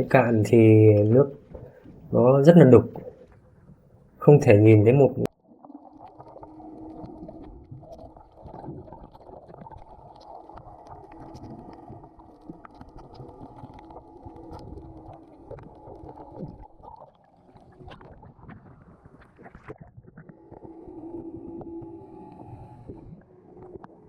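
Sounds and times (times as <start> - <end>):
muffled churning sea water: 0.0 - 24.0
faint clicks and crackles: 5.4 - 24.0.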